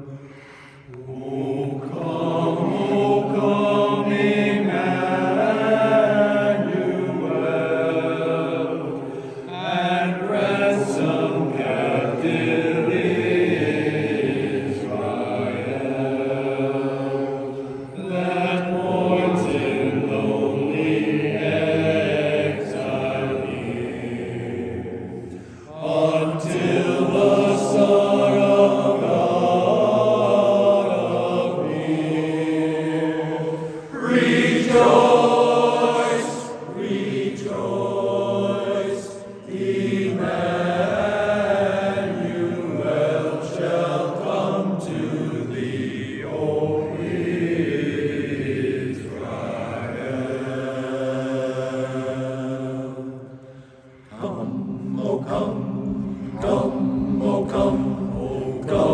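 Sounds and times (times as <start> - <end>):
singers breathing: 0.1 - 1.1, 9.0 - 9.6, 17.4 - 18.0, 25.2 - 25.8, 33.4 - 34.2, 53.3 - 54.2
chorus singing in close harmony: 0.9 - 58.9.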